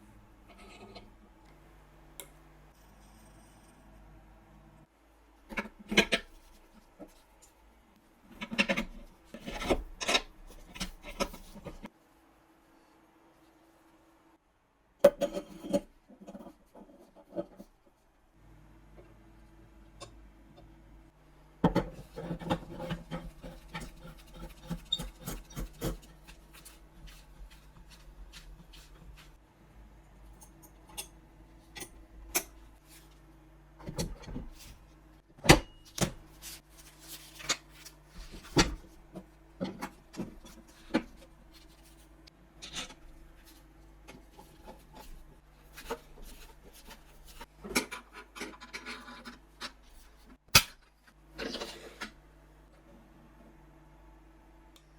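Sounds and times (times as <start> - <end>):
rubbing and scraping: 21.9 - 29.4.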